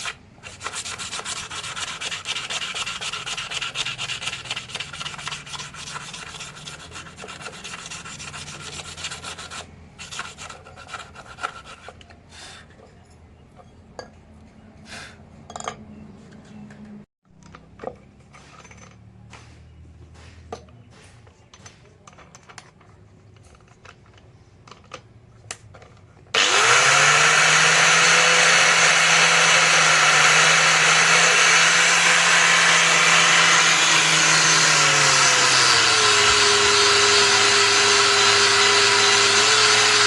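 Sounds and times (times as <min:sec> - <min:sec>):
metal being filed: 0:00.0 - 0:12.7, 0:26.4 - 0:40.0.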